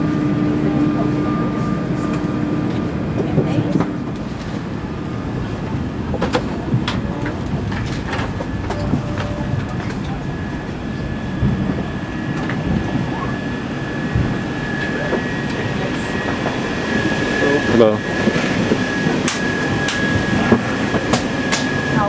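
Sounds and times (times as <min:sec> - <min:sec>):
passenger murmur: 0:00.0 - 0:22.0
cabin ventilation rumble: 0:00.6 - 0:22.0.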